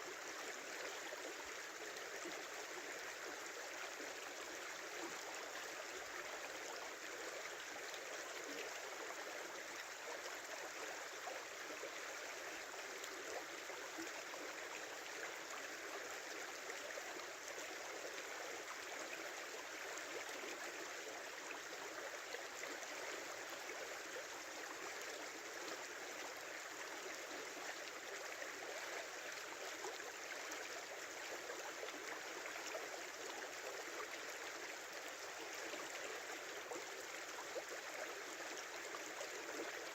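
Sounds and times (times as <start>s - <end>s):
small river flowing: 0.0s - 39.9s.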